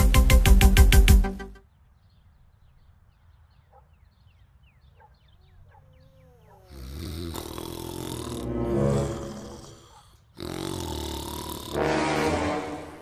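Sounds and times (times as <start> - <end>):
music: 0.0 - 1.6, 8.4 - 9.6
faint birds chirping: 1.5 - 11.5
loud rushing noise: 11.9 - 13.0.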